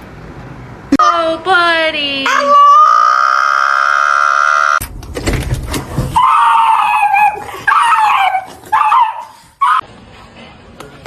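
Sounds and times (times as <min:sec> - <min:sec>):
dog crying: 0:02.3 - 0:04.8, 0:06.1 - 0:09.8.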